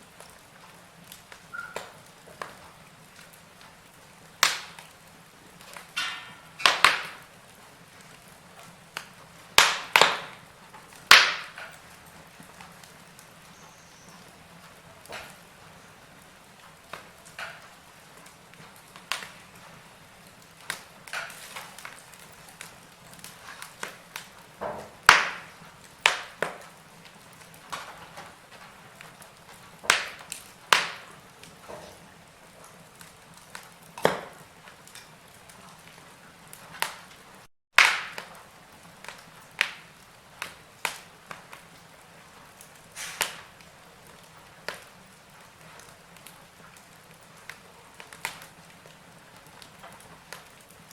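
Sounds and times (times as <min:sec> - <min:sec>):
faint steady hiss: 0:00.0 - 0:37.5
wood fire crackling: 0:00.0 - 0:50.9.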